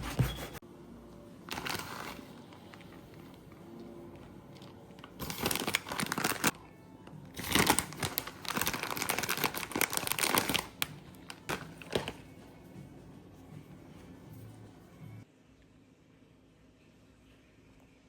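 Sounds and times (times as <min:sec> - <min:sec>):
crinkling and rustling: 0:01.5 - 0:06.6, 0:07.4 - 0:12.6.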